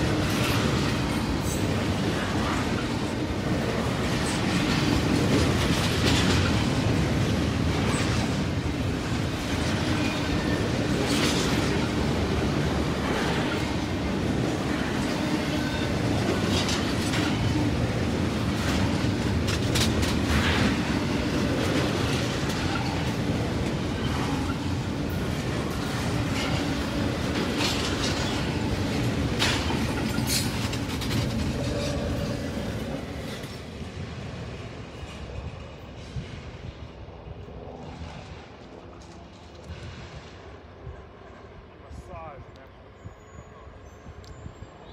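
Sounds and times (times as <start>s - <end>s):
clickety-clack over rail joints: 0.0s - 42.9s
train wheels rumbling on rails: 0.0s - 44.9s.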